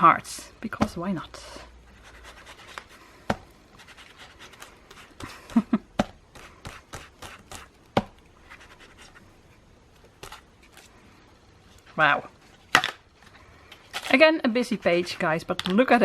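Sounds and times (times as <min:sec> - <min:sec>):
sponge dabbing on paper: 0:01.9 - 0:05.6, 0:06.3 - 0:09.4.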